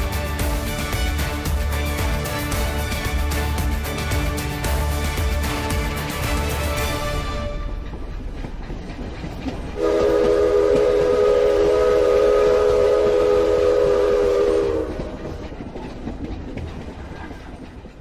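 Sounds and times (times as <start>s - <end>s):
train rumbling: 0.0s - 18.0s
train horn blast: 9.8s - 15.2s.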